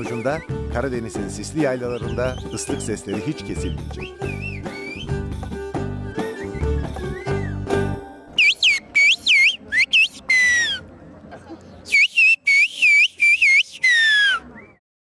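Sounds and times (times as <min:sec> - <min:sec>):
person whistling swooping phrases: 0:04.0 - 0:05.2, 0:08.4 - 0:10.8, 0:11.9 - 0:14.8.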